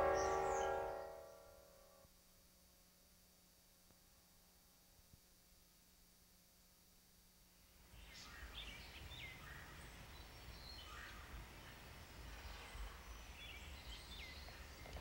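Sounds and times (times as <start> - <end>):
faint bird chirps and calls: 8.0 - 15.0.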